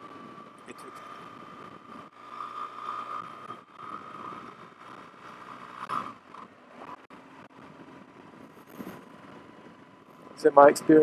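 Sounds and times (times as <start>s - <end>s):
motorcycle riding noise: 0.0s - 11.0s
steady high whine: 0.0s - 11.0s
wind: 0.0s - 11.0s.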